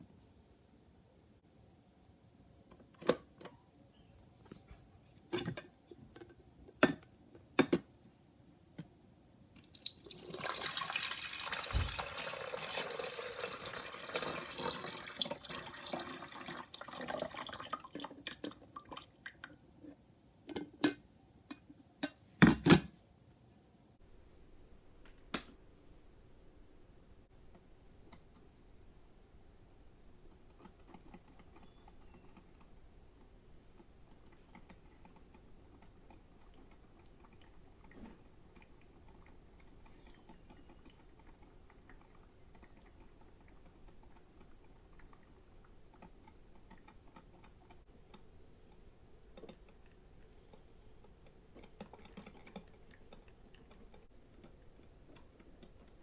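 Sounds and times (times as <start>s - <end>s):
water pouring: 9.6s - 19.6s, 51.1s - 56.0s.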